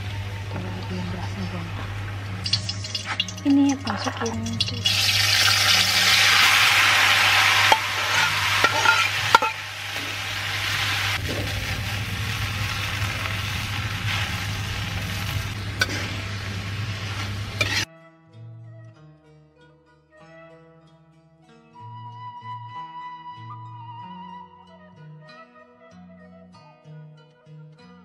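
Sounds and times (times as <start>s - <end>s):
faint music: 0.0s - 11.5s
noodles sizzling in hot oil: 1.9s - 17.9s
metal spatula scraping wok: 2.4s - 17.9s.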